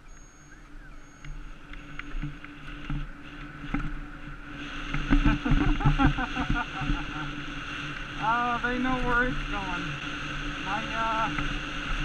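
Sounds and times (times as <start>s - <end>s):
faint high beep: 0.0s - 2.2s
electric bike motor hum: 0.0s - 12.0s.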